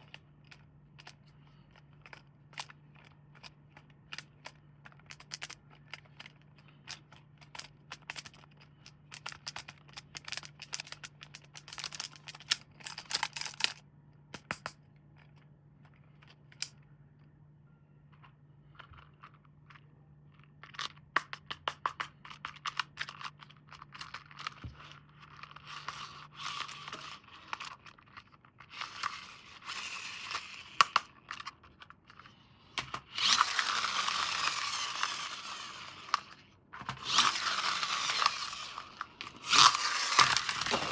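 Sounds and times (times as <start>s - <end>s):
plastic packaging crinkling: 37.1s - 40.9s
plastic tape ripping: 39.2s - 40.9s.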